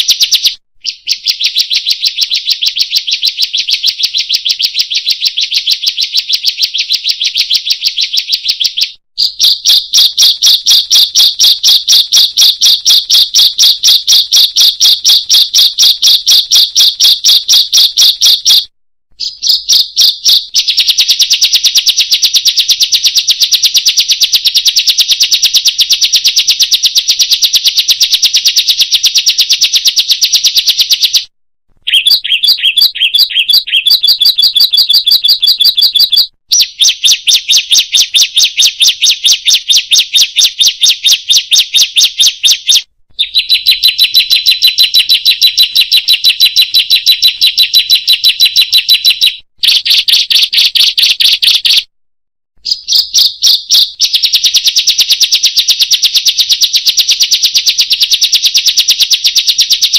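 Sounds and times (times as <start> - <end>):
songbirds chirping rapidly: 0.8 - 18.6, 19.2 - 20.6, 31.8 - 50.0.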